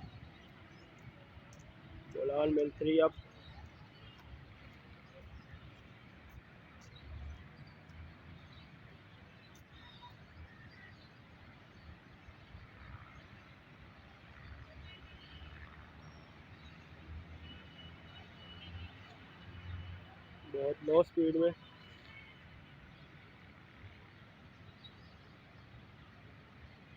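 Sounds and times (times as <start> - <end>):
faint bird chirps: 9.5 - 11.1.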